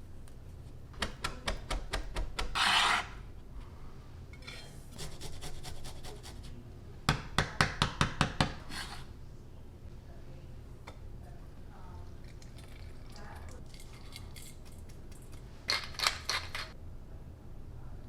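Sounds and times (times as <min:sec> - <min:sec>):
knife scraping board: 0:02.4 - 0:03.2, 0:08.6 - 0:09.1.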